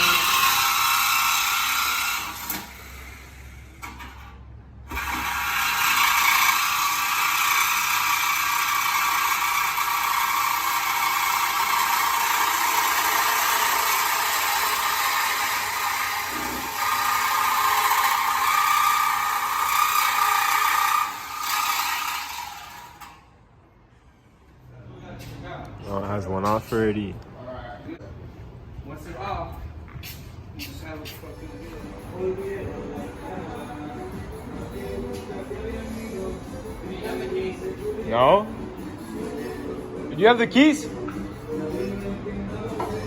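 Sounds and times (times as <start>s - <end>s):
power tool running: 0.0s - 3.9s, 4.9s - 23.3s.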